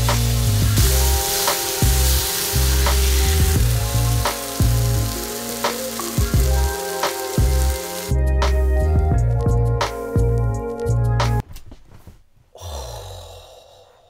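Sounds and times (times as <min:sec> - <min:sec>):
apples sizzling in a skillet: 0:00.0 - 0:08.6
background music with bass: 0:00.0 - 0:11.4.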